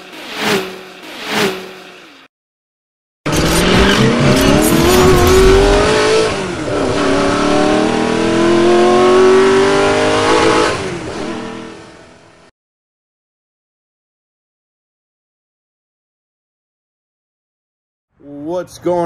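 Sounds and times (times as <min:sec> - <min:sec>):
car engine accelerating hard: 0:03.3 - 0:12.3.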